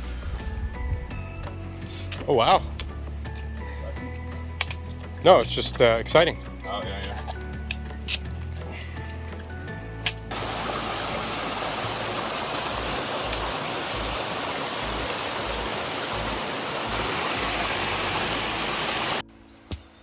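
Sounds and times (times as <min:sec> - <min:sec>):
low rumbles: 0:00.0 - 0:19.2
rushing water: 0:10.3 - 0:19.2.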